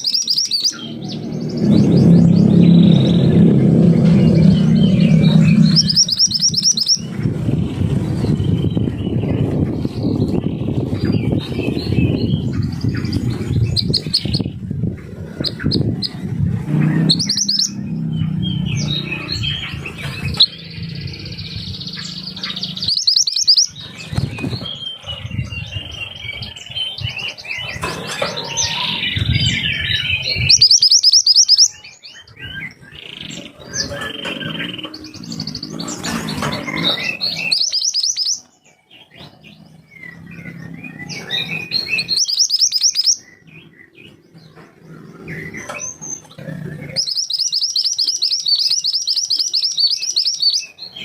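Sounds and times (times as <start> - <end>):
songbird chirping and trilling: 0.0 - 51.0
low rumble: 0.8 - 22.9.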